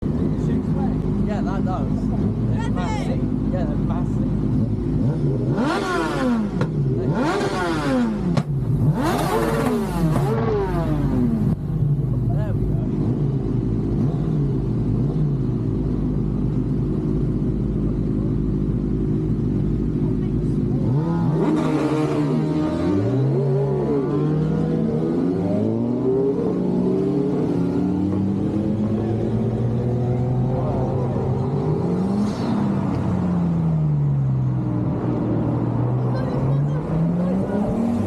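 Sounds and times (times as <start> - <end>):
car engines running: 0.0 - 38.0
vehicle engine running: 6.4 - 21.4.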